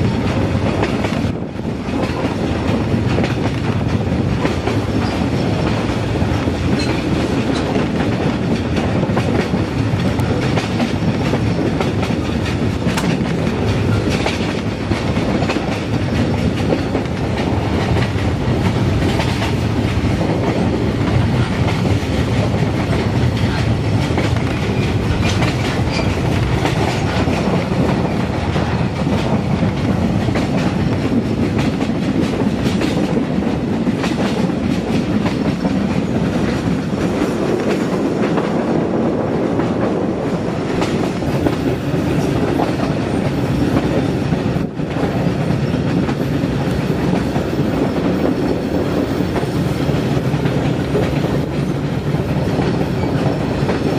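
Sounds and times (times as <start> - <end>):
train rumbling on track: 0.0 - 53.9.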